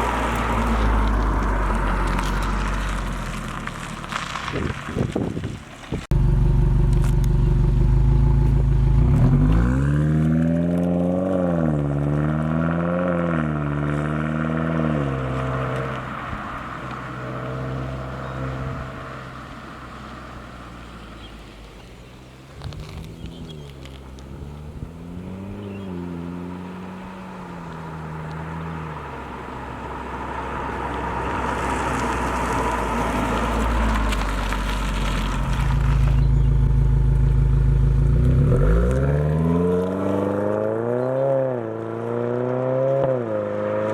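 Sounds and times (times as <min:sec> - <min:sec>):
low exhaust note: 0:06.0 - 0:19.6, 0:34.0 - 0:40.9
car engine revving: 0:06.0 - 0:21.5, 0:22.1 - 0:43.9.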